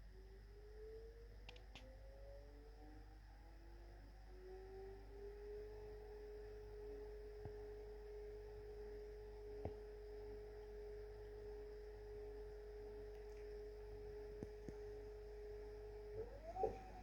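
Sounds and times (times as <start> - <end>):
washing machine whine and hum: 0.0 - 17.0
light clicks: 1.4 - 1.9.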